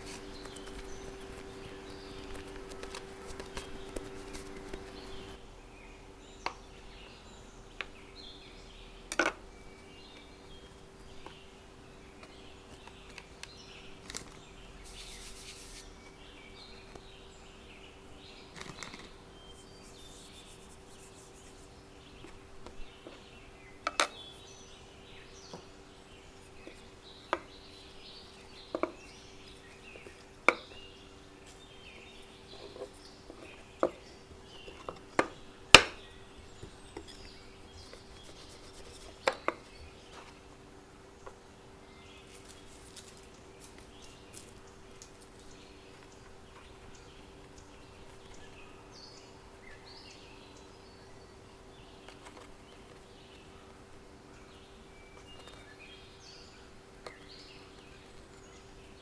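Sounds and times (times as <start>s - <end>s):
faint bird chirps: 0.0s - 9.0s, 9.6s - 40.3s.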